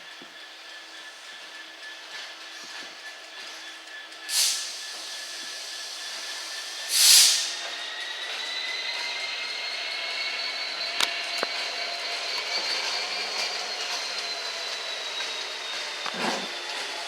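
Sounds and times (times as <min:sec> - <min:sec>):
locomotive high whine: 0:00.0 - 0:17.0
air brake hiss: 0:04.3 - 0:07.7.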